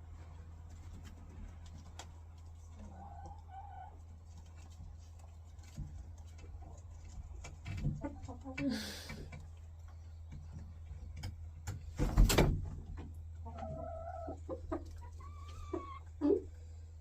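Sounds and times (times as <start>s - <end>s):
hens clucking: 0.4s - 11.8s, 12.7s - 16.8s
drawn-out hen calls: 2.2s - 5.2s, 12.9s - 16.7s.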